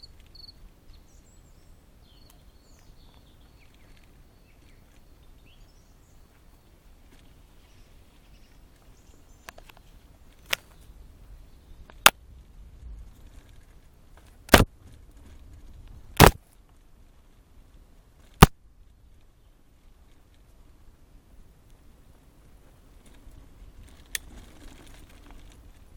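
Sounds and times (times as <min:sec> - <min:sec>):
branches knocking against camera: 0:14.2 - 0:15.0, 0:16.2 - 0:16.5
handling rustle: 0:22.4 - 0:25.9.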